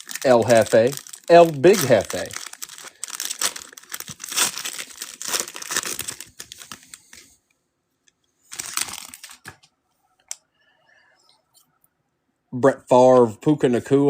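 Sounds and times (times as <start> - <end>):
wrapper tearing and crinkling: 0.0 - 7.3, 8.5 - 9.6.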